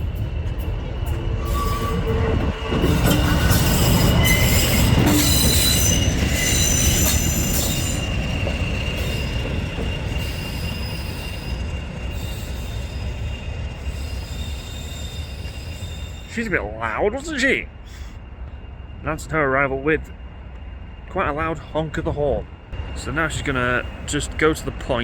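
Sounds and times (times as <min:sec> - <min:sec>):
wheels on rails: 0:00.0 - 0:16.4
diesel locomotive passing: 0:00.0 - 0:25.0
high squealing tones: 0:01.4 - 0:17.1.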